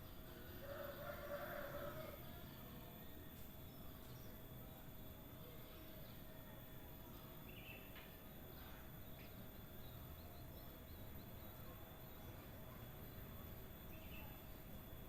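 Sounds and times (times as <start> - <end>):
steady hum: 0.0 - 15.0
soft bird chirps: 7.1 - 14.7.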